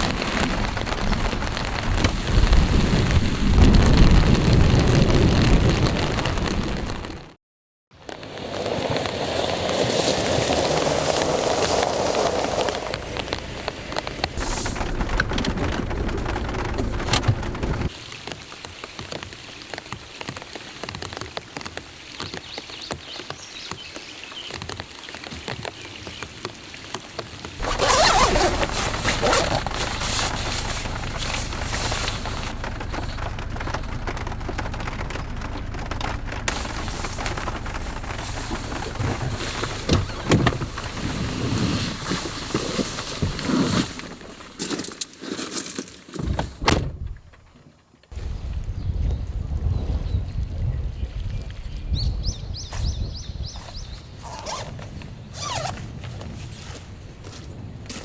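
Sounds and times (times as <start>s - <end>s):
rain falling: 0.0s - 7.4s, 8.1s - 44.5s.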